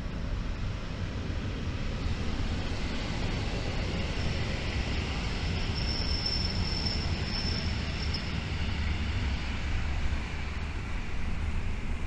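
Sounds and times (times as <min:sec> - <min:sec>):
train low rumble: 0:00.0 - 0:12.0
high wheel squeal: 0:05.4 - 0:08.4.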